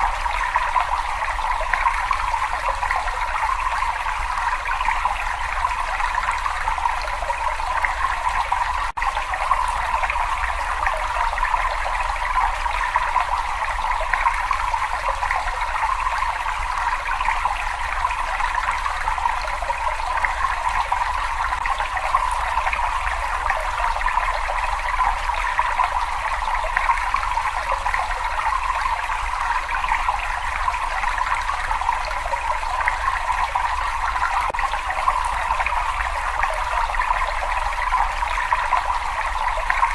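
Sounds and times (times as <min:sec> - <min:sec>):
water running and trickling: 0:00.0 - 0:39.9.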